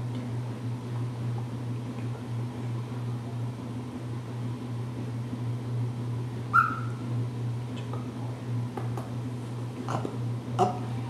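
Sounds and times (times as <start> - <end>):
steady low hum: 0.0 - 11.0
parrot call: 6.5 - 7.0.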